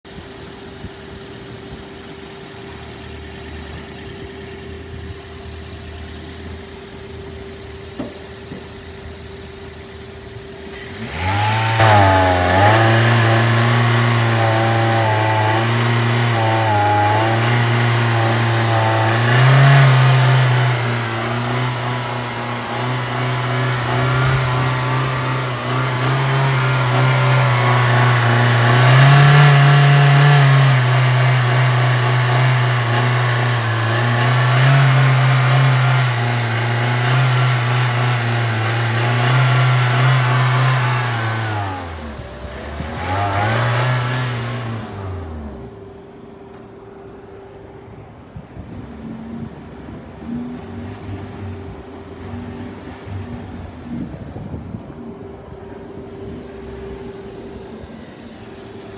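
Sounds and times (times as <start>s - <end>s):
car engine starting and idling: 0.0s - 58.9s.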